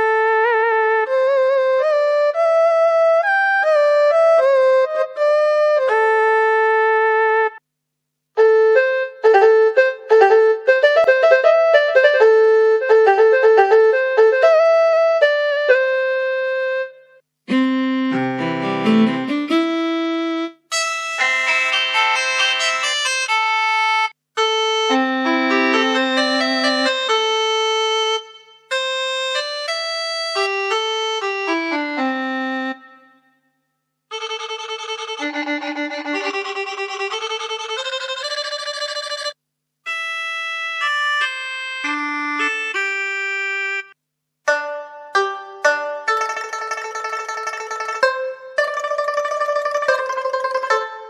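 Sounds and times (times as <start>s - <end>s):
keyboard playing chords: 17.5s - 33.2s
keyboard melody of sustained notes: 21.2s - 33.3s.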